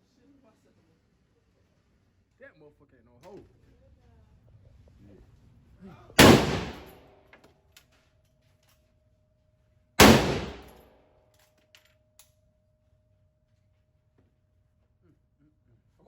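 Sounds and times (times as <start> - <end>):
gunshots with ringing echo: 6.2 - 7.0, 10.0 - 10.8.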